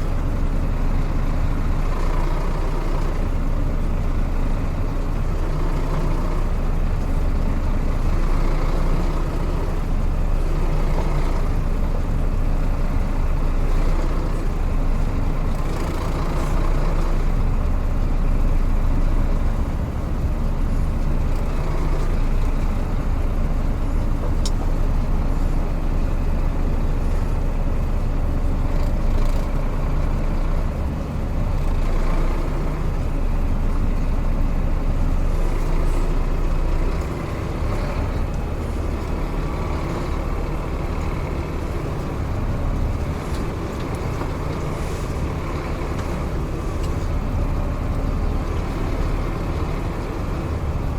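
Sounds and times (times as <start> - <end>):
truck diesel engine running: 0.0 - 50.9.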